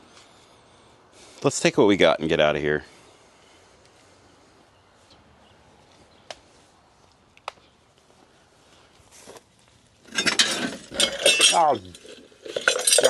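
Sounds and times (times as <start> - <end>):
faint footsteps: 3.1 - 10.1
rustling: 5.0 - 13.0.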